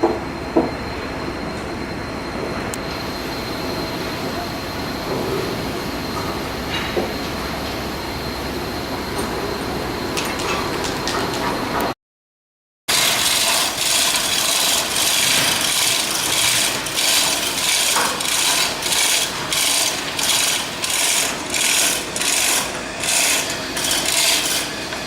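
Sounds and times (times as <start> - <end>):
tool rasping on steel: 12.9 - 25.0.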